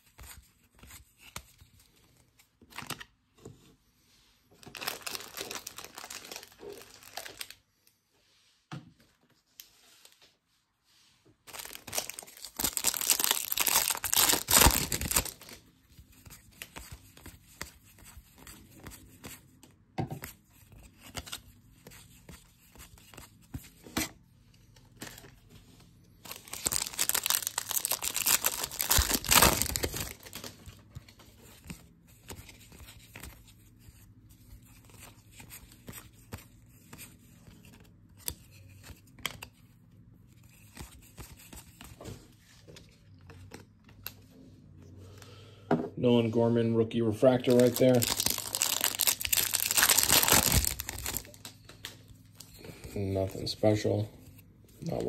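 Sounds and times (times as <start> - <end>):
foil wrappers tearing and crinkling: 4.7 - 7.6, 11.5 - 15.6, 26.2 - 30.5, 47.4 - 51.5
cards flicking and rustling: 11.5 - 19.6, 20.2 - 24.1, 26.2 - 39.7, 40.4 - 44.3, 47.5 - 53.4.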